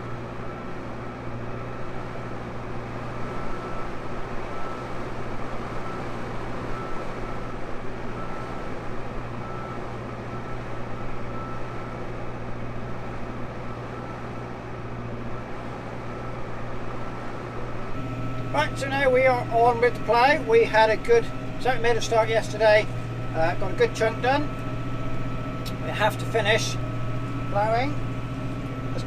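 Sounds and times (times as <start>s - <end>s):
tractor engine under load: 0.0s - 29.0s
faint high whine: 17.9s - 29.0s.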